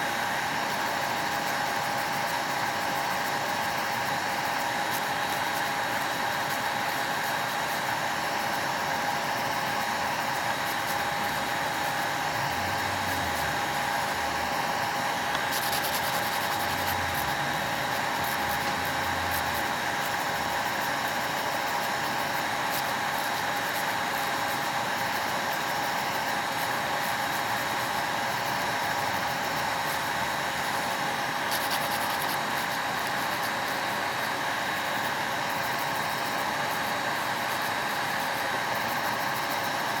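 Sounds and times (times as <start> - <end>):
electric nail drill whining: 0.6 - 39.7
drill bit grinding on nail: 4.6 - 25.2.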